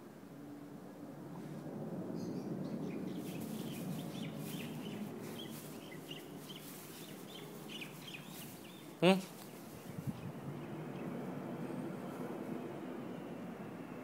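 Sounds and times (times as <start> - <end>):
small birds chirping: 2.2 - 12.3
low rustling: 3.1 - 10.4.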